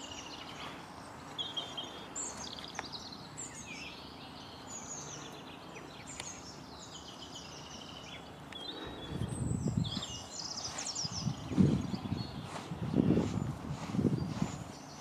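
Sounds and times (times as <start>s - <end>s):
small birds chirping and trilling: 0.0s - 15.0s
low rumbling with uneven thuds: 11.1s - 14.8s.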